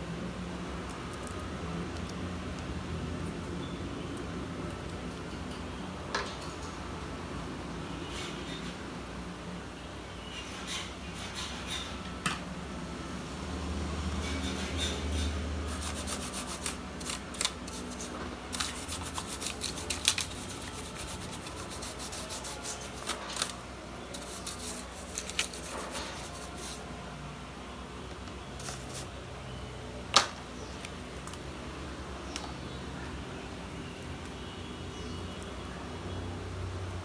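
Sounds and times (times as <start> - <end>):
laptop parts clicking and scratching: 0.8 - 5.4, 14.2 - 26.8, 28.2 - 29.2.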